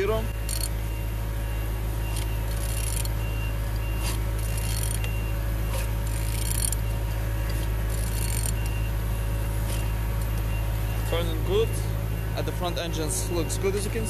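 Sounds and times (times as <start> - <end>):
steady low hum: 0.0 - 14.0
wrench scraping and clicking: 2.1 - 3.2, 4.0 - 5.1, 5.7 - 6.8, 7.4 - 8.7.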